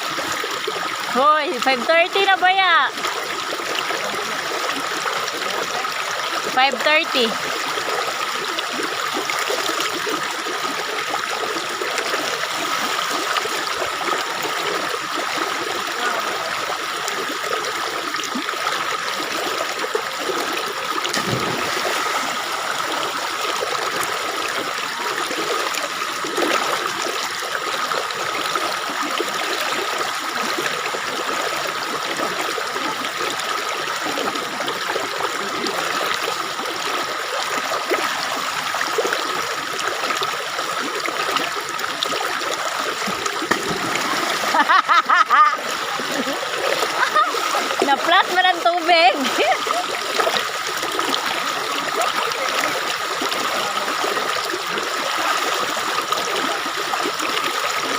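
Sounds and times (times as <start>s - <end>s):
stream water trickling: 0.0s - 57.9s.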